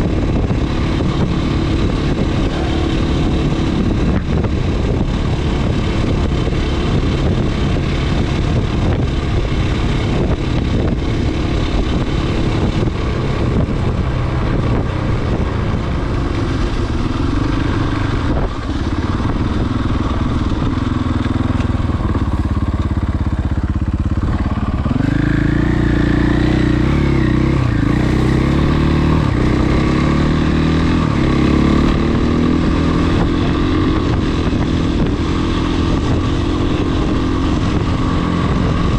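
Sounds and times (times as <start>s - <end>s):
dirt bike engine revving: 23.7s - 38.9s.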